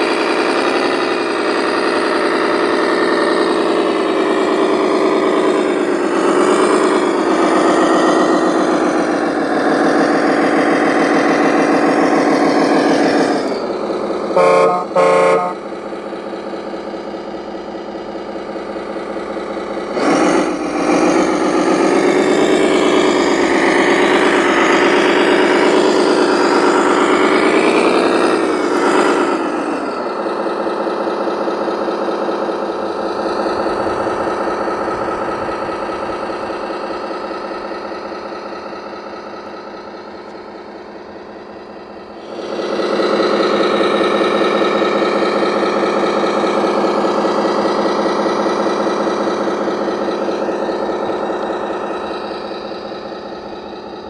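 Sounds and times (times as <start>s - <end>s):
diesel engine sound revving: 0.0s - 54.0s
air horn blasts: 14.3s - 15.7s.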